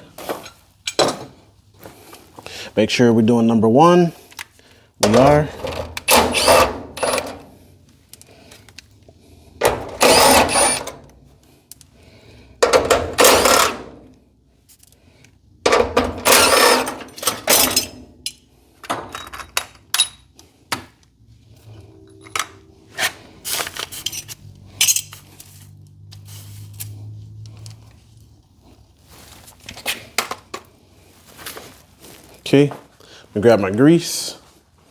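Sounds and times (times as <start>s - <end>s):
power driver running: 5.0s - 7.5s, 9.6s - 11.1s, 12.6s - 13.9s, 15.7s - 17.8s
metal hardware clicking: 15.7s - 20.2s.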